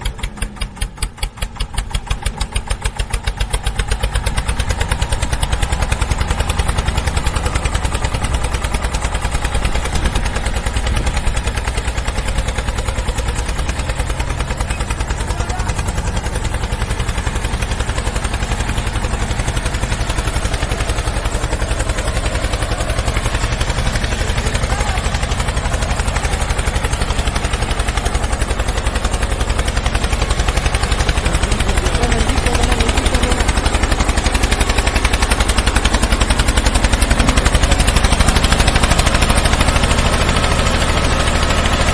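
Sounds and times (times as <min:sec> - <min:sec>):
engine running with pulsing beat: 0:00.0 - 0:41.9.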